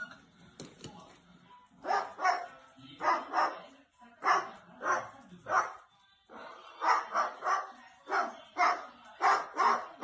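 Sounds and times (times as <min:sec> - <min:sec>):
dog barking: 0:01.8 - 0:05.9, 0:06.8 - 0:10.0.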